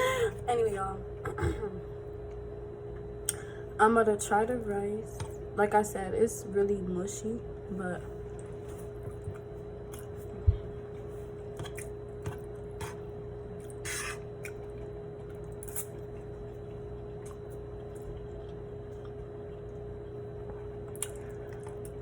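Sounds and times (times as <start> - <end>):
steady hum: 0.0 - 22.0
wet mouth eating sounds: 8.3 - 22.0.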